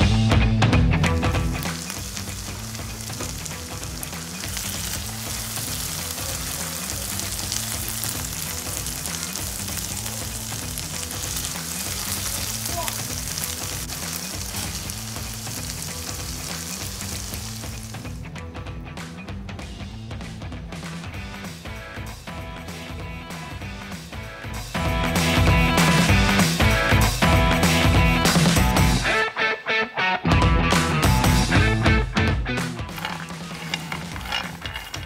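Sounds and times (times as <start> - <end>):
faint background music: 0.0 - 29.4
food sizzling in a pan: 1.1 - 18.2.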